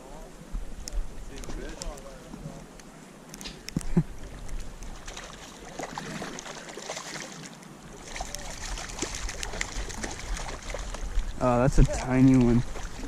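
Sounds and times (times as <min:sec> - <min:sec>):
wind rumble on microphone: 0:00.0 - 0:02.7, 0:08.1 - 0:13.0
water splashing and lapping: 0:00.8 - 0:13.0.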